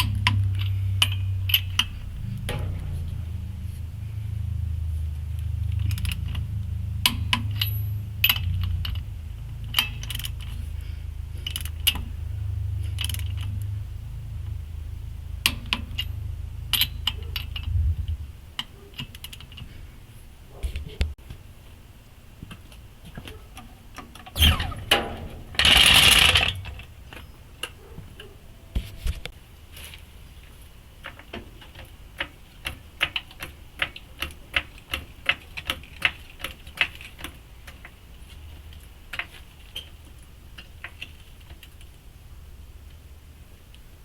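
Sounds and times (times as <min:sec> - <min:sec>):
low steady rumble: 0:00.0 - 0:33.8
light metallic clicks and clinks: 0:07.1 - 0:09.0.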